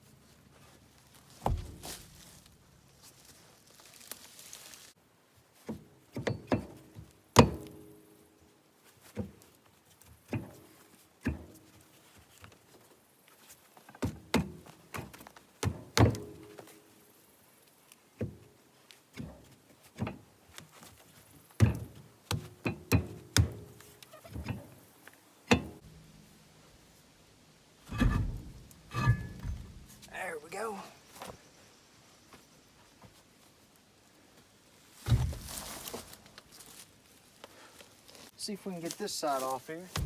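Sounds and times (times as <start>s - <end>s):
heavy knocks on metal: 1.4s - 2.0s, 21.6s - 23.8s, 27.9s - 30.1s.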